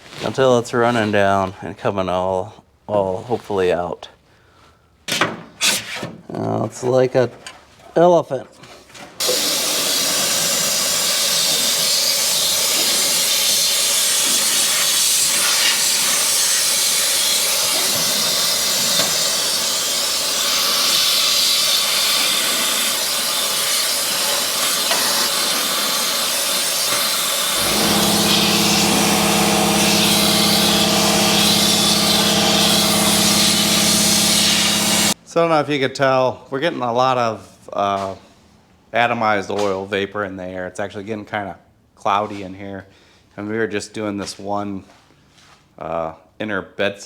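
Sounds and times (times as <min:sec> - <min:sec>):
air spray gun hissing: 0:09.2 - 0:35.2
motor hum: 0:27.4 - 0:35.2.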